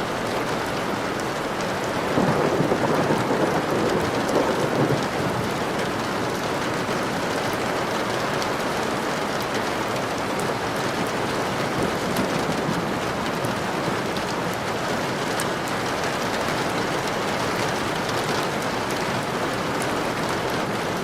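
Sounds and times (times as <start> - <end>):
heavy rain falling: 0.0 - 21.0
low rumble of thunder: 2.0 - 7.2, 11.7 - 14.5.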